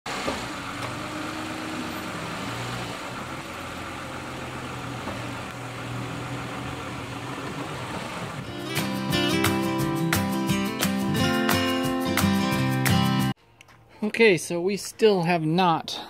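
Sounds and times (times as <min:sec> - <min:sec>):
car engine idling: 0:00.1 - 0:10.1.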